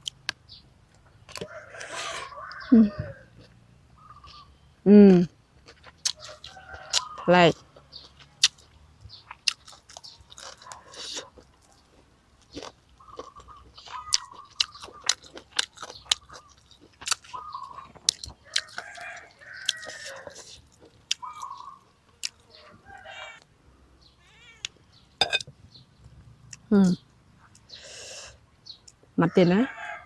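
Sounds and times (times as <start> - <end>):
crunchy chewing: 5.6 - 7.2, 7.8 - 22.5.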